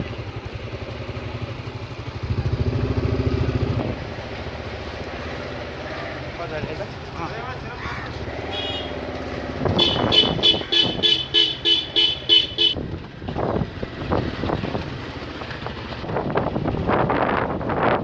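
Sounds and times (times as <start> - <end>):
motorcycle road and wind noise: 0.0 - 18.0
vehicle horn short beeps: 8.5 - 9.0, 9.8 - 12.8.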